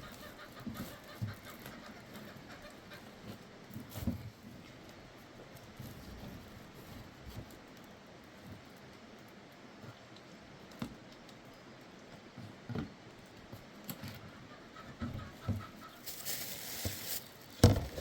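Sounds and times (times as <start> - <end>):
chickens clucking: 0.0 - 4.3, 14.0 - 18.0
knocks and thumps: 17.6 - 18.0.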